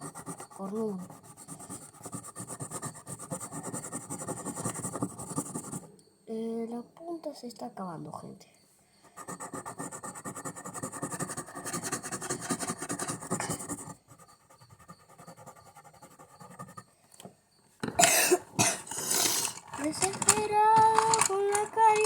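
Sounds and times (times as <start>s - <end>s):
pencil scribbling on cardboard: 0.0s - 5.9s, 9.0s - 17.0s.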